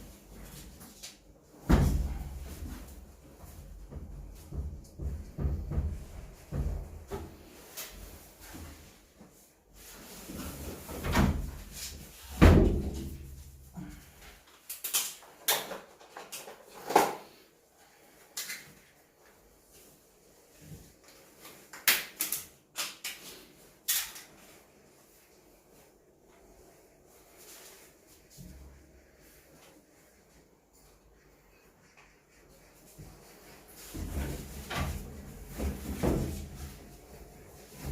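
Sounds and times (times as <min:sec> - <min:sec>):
knocks and clicks on washing machine: 0:03.9 - 0:07.3.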